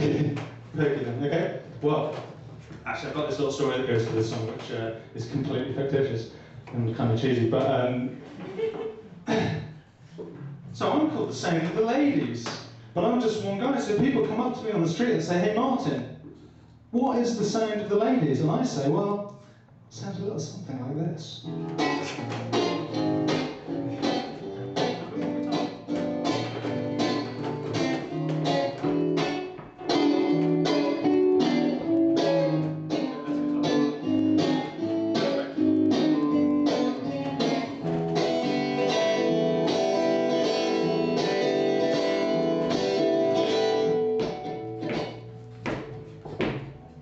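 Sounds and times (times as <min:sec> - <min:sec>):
acoustic guitar strumming chords: 0:21.5 - 0:47.0.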